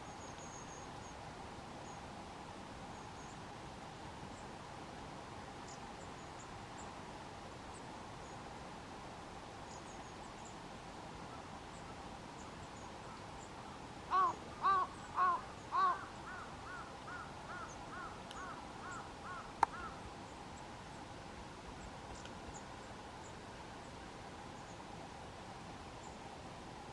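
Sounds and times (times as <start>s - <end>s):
small birds calling: 12.4s - 20.1s
crow cawing: 14.1s - 20.0s.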